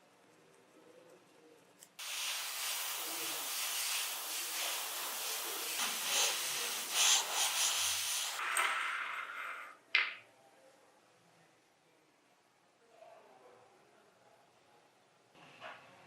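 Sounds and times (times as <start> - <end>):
spray paint hissing: 2.0 - 8.5.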